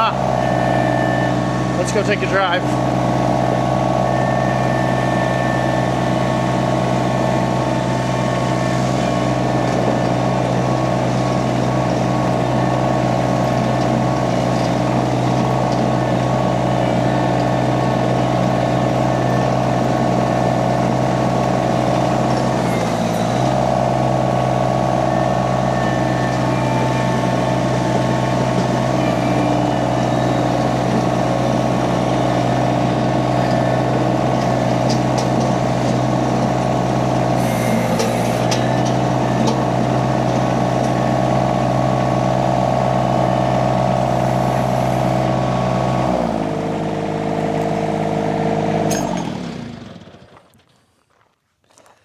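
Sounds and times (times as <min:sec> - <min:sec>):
skid steer engine running: 0:00.0 - 0:50.8.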